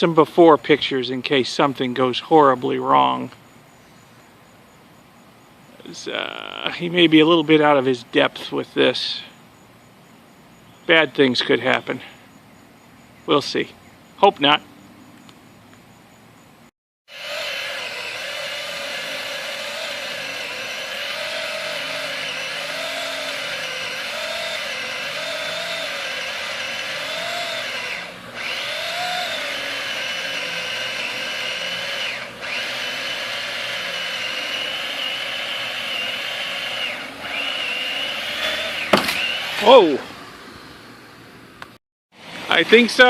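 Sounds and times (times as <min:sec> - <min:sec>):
chainsaw cutting wood: 0:17.1 - 0:40.3.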